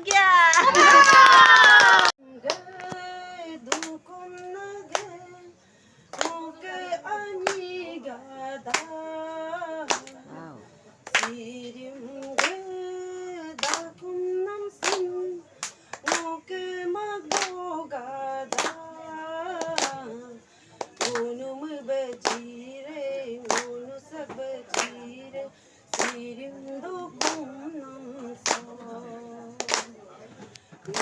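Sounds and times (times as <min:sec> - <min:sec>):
hands clapping a beat: 0:00.0 - 0:03.1, 0:03.7 - 0:05.2, 0:06.1 - 0:06.4, 0:07.4 - 0:07.7, 0:08.6 - 0:09.0, 0:09.9 - 0:10.2, 0:11.0 - 0:11.4, 0:12.2 - 0:12.6, 0:13.6 - 0:13.9, 0:14.8 - 0:16.4, 0:17.2 - 0:17.6, 0:18.5 - 0:18.8, 0:19.5 - 0:20.1, 0:20.8 - 0:21.3, 0:22.1 - 0:25.1, 0:25.9 - 0:27.5, 0:28.4 - 0:28.8, 0:29.6 - 0:31.0
women singing: 0:00.0 - 0:31.0.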